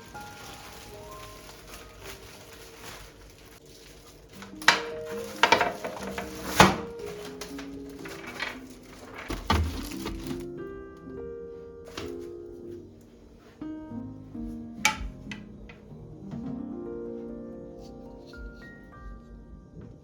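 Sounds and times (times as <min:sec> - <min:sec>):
kitchenware clattering: 0:00.0 - 0:10.5, 0:14.8 - 0:15.8
soft piano music: 0:00.0 - 0:20.0.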